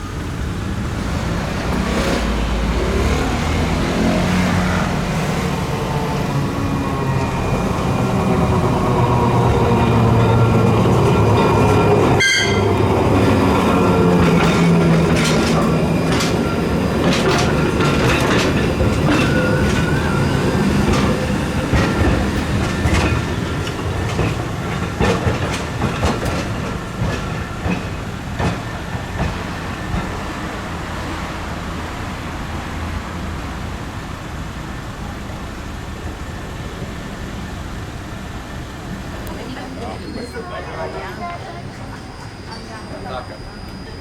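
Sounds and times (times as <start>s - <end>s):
tram wheel squeal: 0.0s - 32.2s, 36.1s - 44.0s
tram rumbling on rails: 0.0s - 44.0s
wheels clicking over rail joints: 7.2s - 30.2s.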